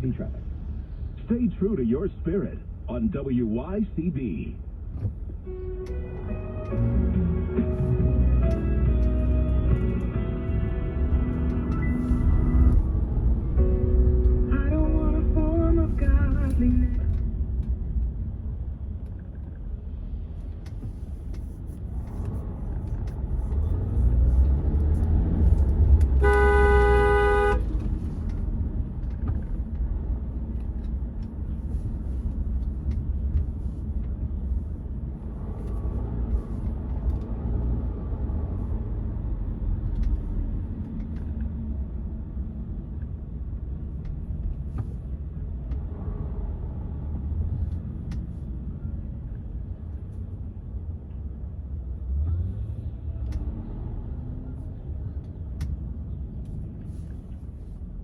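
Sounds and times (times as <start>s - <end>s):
car driving rumble: 0.0s - 58.0s
car horn honking: 26.1s - 27.8s.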